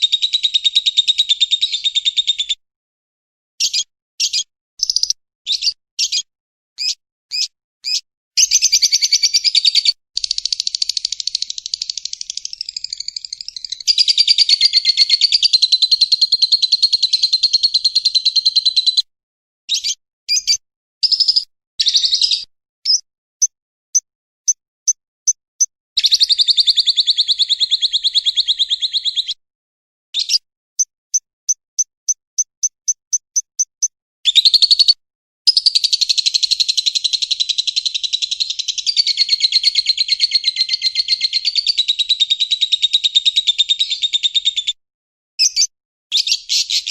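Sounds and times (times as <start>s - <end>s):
short high bird chirps: 3.6s - 19.0s, 19.7s - 29.4s, 30.2s - 44.5s, 45.4s - 46.9s
songbird chattering trill: 3.6s - 19.0s, 19.7s - 23.5s, 34.3s - 44.7s, 45.4s - 46.9s.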